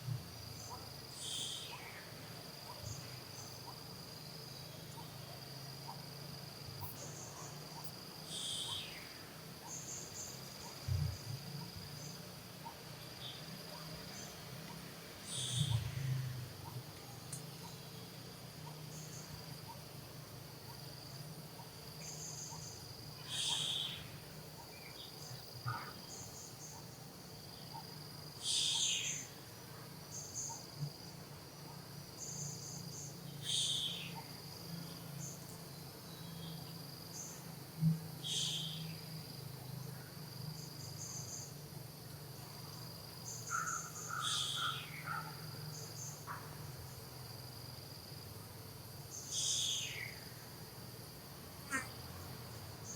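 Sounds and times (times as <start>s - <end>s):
insects droning: 0.0s - 52.9s
sharp high insect call: 0.0s - 52.9s.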